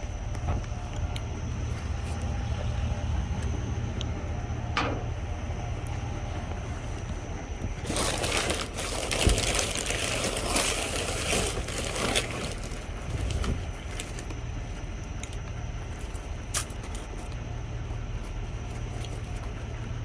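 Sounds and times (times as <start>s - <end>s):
low rumble: 0.0s - 16.0s
bags and packaging rustling: 6.8s - 17.4s.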